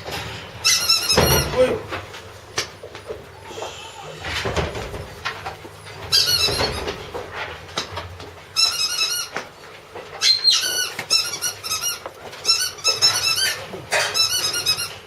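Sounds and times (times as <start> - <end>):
puppy whining and squealing: 3.3 - 4.5, 10.2 - 15.0.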